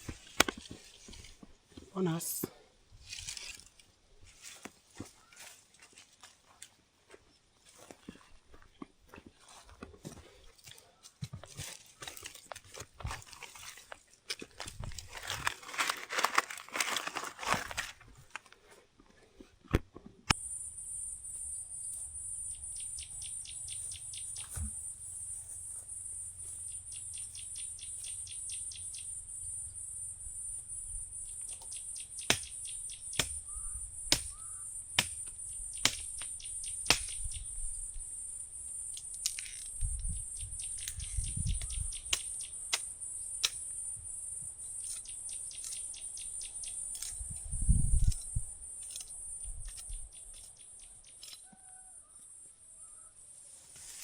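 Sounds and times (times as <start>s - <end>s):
insects droning: 20.3s - 54.0s
rattling insect clicks: 31.2s - 51.5s.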